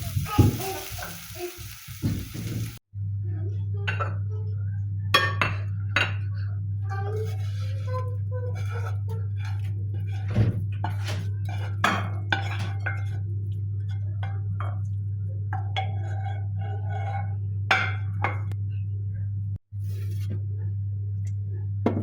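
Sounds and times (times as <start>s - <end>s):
dishes clinking: 5.2s - 6.3s, 8.6s - 13.2s
dishes and cutlery handled: 8.5s - 13.2s.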